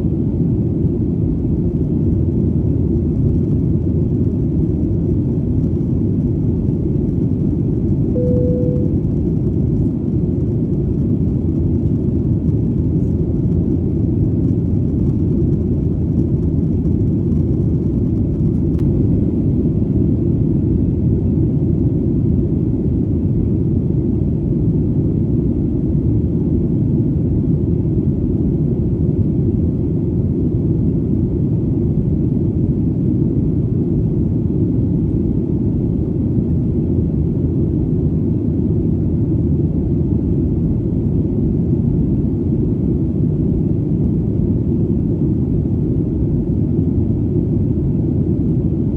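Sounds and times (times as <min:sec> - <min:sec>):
airplane engine rumble in flight: 0:00.0 - 0:48.9.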